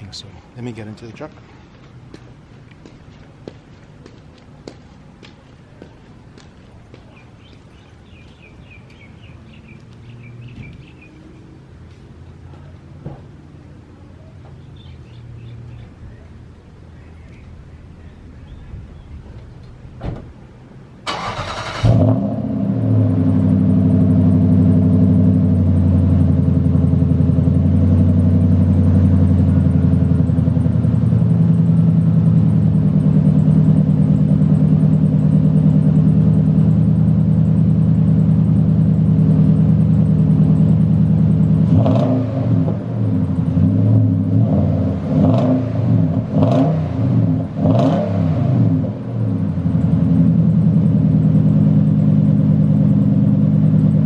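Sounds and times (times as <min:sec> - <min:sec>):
engine throttle blips: 0:14.4 - 0:54.0
engine starter cranking: 0:21.0 - 0:22.1
engine idling: 0:21.0 - 0:42.0, 0:48.9 - 0:54.0.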